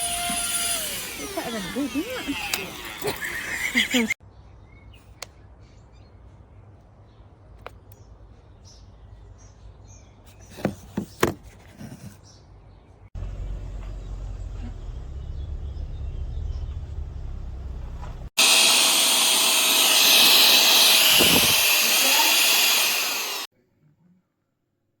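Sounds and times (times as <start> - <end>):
vacuum motor rushing air: 0.0 - 3.4, 17.4 - 23.5.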